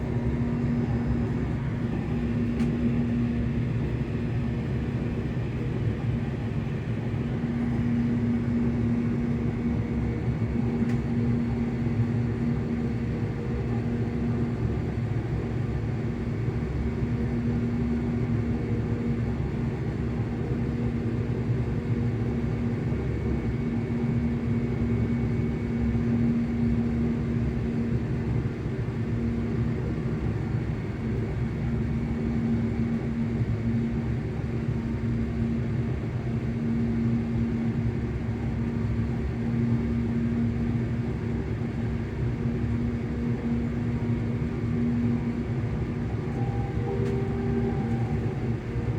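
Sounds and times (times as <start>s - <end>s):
electric train motors humming: 42.8s - 48.9s.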